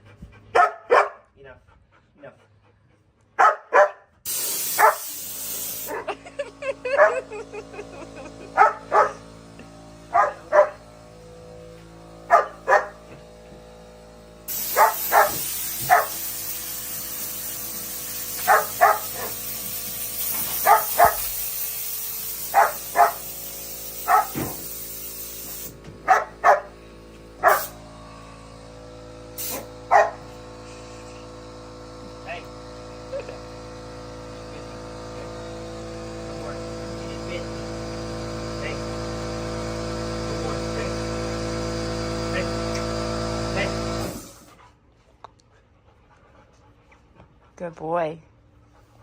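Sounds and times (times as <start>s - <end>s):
dog barking: 0.5s - 1.3s, 3.4s - 4.1s, 4.7s - 5.1s, 7.0s - 7.2s, 8.6s - 9.2s, 10.1s - 10.8s, 12.3s - 13.0s, 14.7s - 16.2s, 18.4s - 19.4s, 20.6s - 21.3s, 22.5s - 23.2s, 24.0s - 24.6s, 26.1s - 26.7s, 27.4s - 27.7s, 29.9s - 30.2s
compressed air hissing from blow gun: 4.3s - 6.2s, 14.4s - 25.8s, 27.4s - 27.8s, 29.3s - 29.9s, 30.6s - 31.5s.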